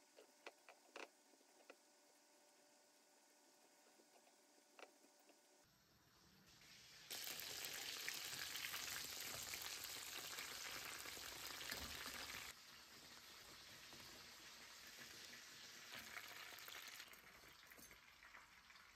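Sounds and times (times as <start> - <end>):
hot oil sizzling in a pan: 6.2 - 18.9.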